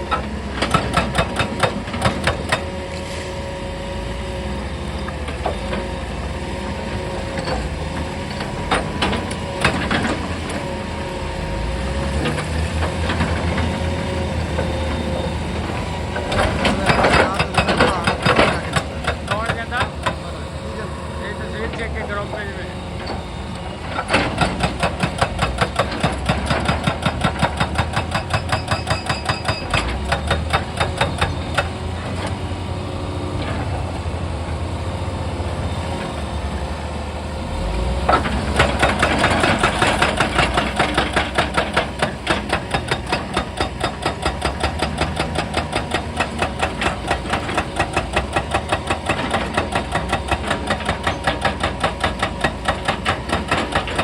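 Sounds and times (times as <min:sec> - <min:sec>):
hydraulic rock breaker hammering stone: 0:00.0 - 0:02.8, 0:07.2 - 0:10.7, 0:15.6 - 0:20.5, 0:23.8 - 0:32.4, 0:37.6 - 0:54.0
excavator engine running: 0:00.0 - 0:54.0.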